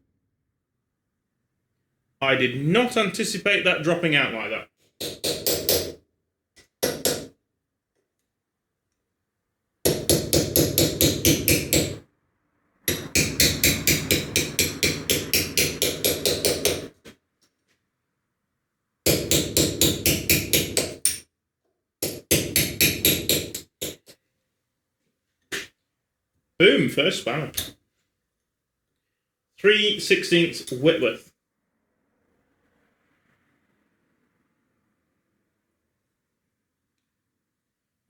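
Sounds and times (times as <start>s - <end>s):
hammer knocks on metal: 5.0s - 6.0s, 6.8s - 7.3s, 12.9s - 17.2s.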